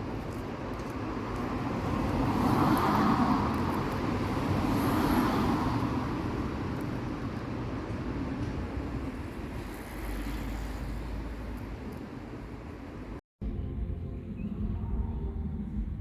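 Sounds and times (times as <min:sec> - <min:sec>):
road vehicle passing by: 0:00.2 - 0:12.7.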